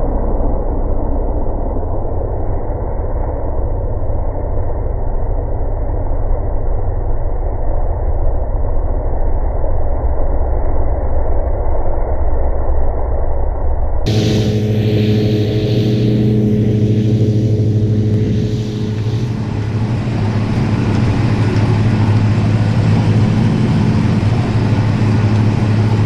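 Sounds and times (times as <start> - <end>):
tractor engine running: 14.1 - 26.0.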